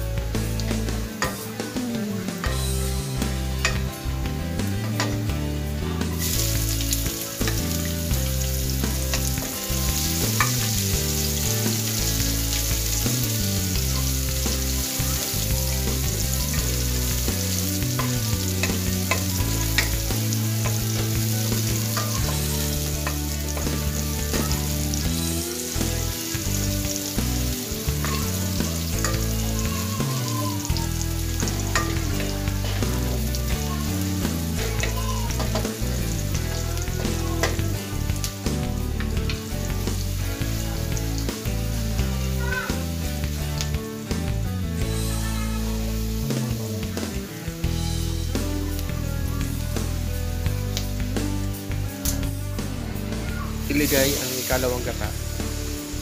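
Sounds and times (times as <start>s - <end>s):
onion sizzling in hot oil: 0.0s - 56.0s.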